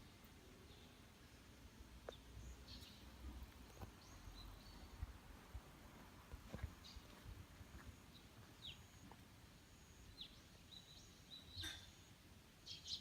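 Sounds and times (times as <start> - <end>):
faint bird chirps: 9.7 - 13.0.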